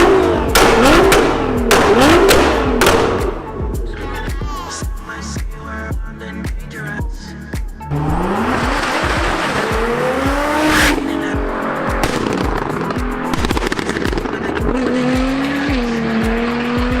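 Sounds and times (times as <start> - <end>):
car engine accelerating hard: 0.0 - 3.7, 7.9 - 17.0
background music with steady beat: 0.0 - 17.0.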